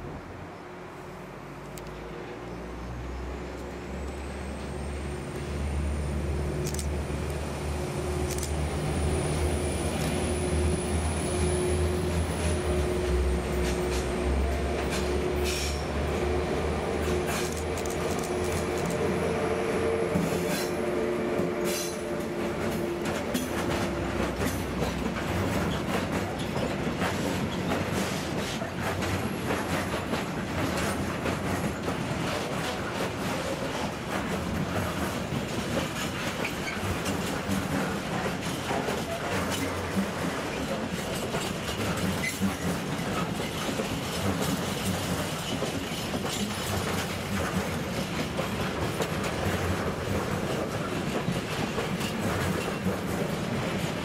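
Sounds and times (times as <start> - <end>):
electric locomotive hum: 0.0 - 54.0
wheels clicking over rail joints: 21.7 - 54.0.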